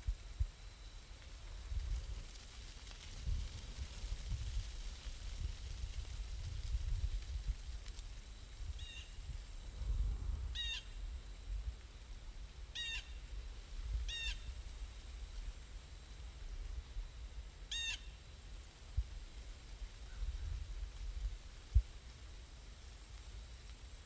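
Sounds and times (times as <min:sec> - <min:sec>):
bird calling: 0:12.8 - 0:13.2, 0:17.7 - 0:18.2.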